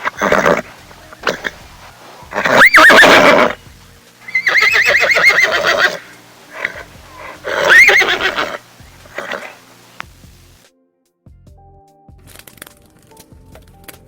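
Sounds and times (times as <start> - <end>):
animal calling with wavering pitch: 2.3 - 3.6, 4.3 - 9.6.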